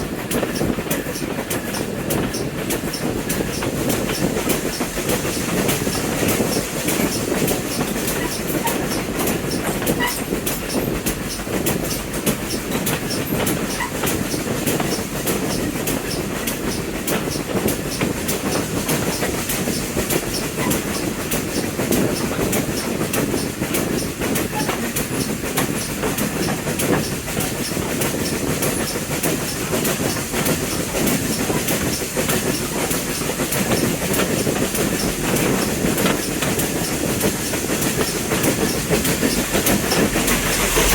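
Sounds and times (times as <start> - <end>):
train rumbling: 0.0 - 40.9
wheels clacking over rails: 0.0 - 40.9.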